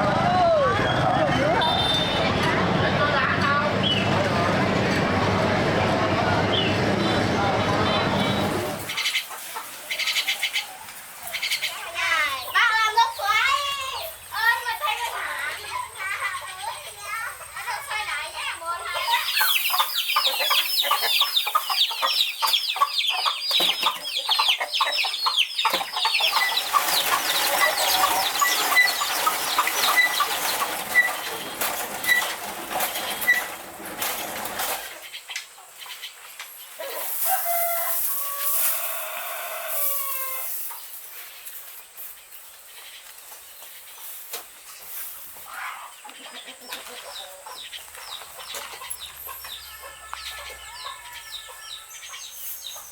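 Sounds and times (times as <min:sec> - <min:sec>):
chickens clucking: 0:08.0 - 0:13.6, 0:14.3 - 0:52.9
chicken drawn-out calls: 0:18.8 - 0:35.8, 0:36.7 - 0:40.9, 0:45.4 - 0:52.9.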